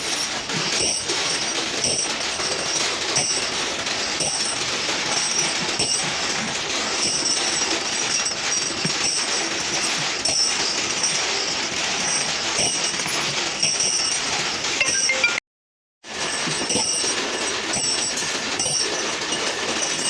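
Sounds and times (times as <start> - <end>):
machinery running: 14.4 - 15.4.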